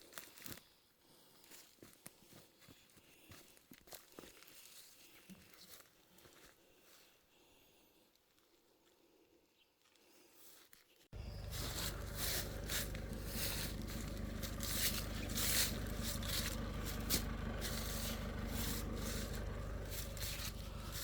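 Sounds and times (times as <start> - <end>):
low hum: 11.2 - 21.0
scraping and rustling strokes: 11.2 - 21.0.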